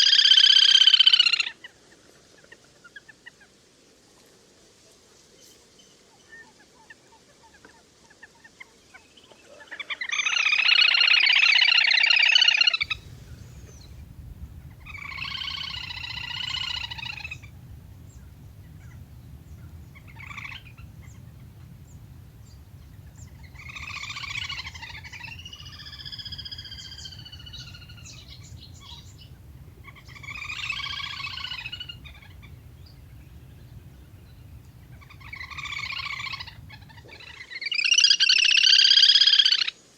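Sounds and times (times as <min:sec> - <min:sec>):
steady low hum: 0:12.8 - 0:37.2
ducks whistling calls: 0:12.8 - 0:38.1.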